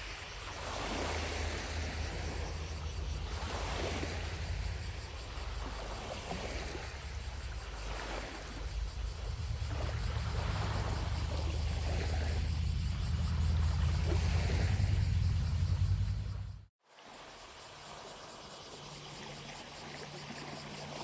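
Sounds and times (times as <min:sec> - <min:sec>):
distant cicadas buzzing: 0:00.0 - 0:21.0
waves lapping on shore: 0:00.0 - 0:21.0
steady low rumble: 0:01.5 - 0:16.7.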